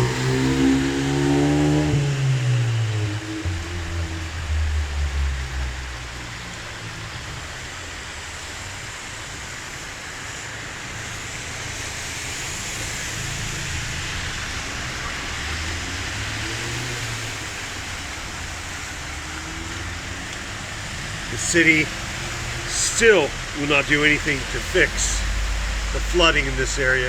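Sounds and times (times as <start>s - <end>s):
low hum: 0.0s - 8.3s
heavy rain hissing: 0.0s - 27.0s
rushing floodwater: 0.0s - 27.0s.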